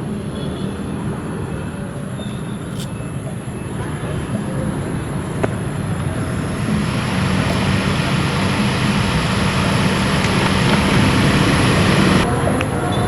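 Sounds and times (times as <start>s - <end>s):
motorcycle engine running: 5.4s - 12.2s.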